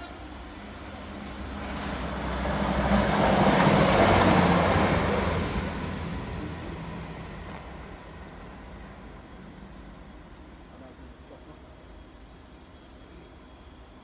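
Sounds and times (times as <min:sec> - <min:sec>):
train passing: 0:00.0 - 0:14.0.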